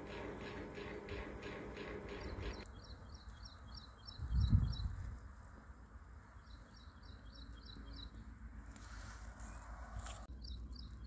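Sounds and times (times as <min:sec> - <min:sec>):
small bird chirping: 0:01.5 - 0:05.2, 0:06.3 - 0:08.3, 0:09.3 - 0:11.0
wind rumble on microphone: 0:04.1 - 0:05.3.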